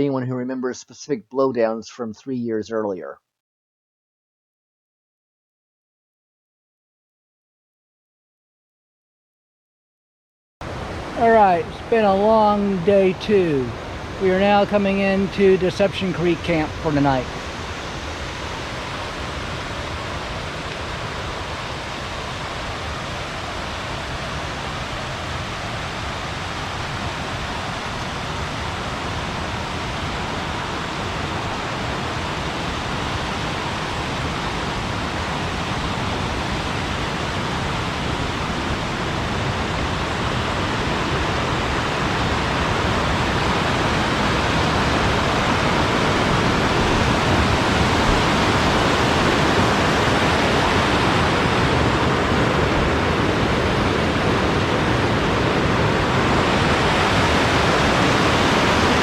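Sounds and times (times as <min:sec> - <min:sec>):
rushing stream water: 0:10.6 - 0:59.0.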